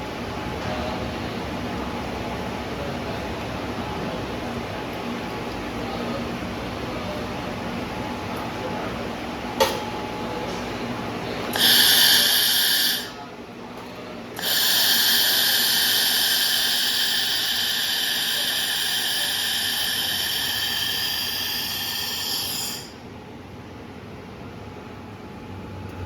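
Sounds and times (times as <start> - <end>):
laser welding machine whine: 11.3 - 13.2, 14.4 - 23.1.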